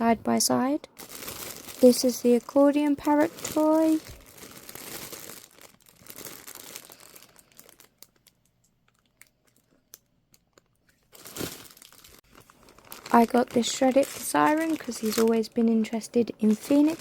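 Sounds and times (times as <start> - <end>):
paper toy crinkling: 1.0 - 9.7, 10.5 - 17.0.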